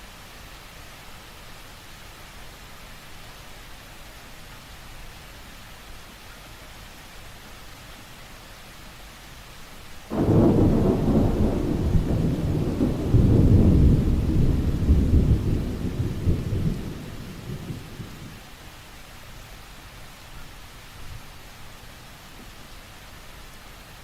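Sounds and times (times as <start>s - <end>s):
steady rain: 0.0s - 24.0s
thunder rumbling: 10.1s - 18.4s.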